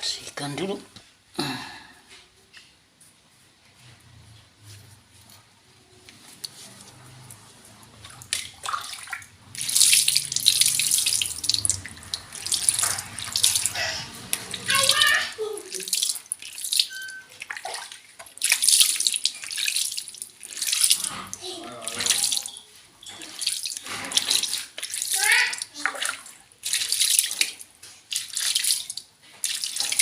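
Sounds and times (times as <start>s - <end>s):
water running and splashing: 6.4s - 30.0s.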